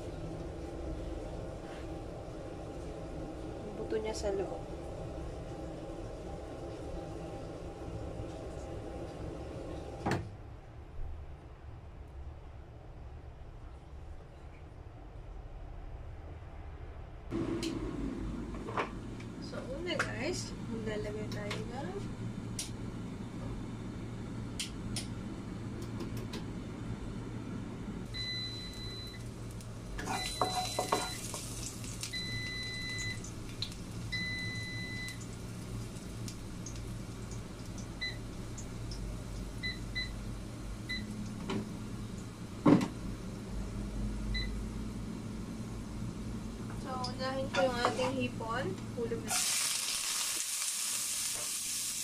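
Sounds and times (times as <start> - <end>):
low kitchen hum: 0.0 - 52.0
appliance beeps: 28.1 - 29.3, 30.0 - 33.3, 34.1 - 35.3, 38.0 - 38.3, 39.6 - 40.2, 40.8 - 41.2, 44.3 - 44.6
food sizzling in hot oil: 28.6 - 38.8, 49.3 - 52.0.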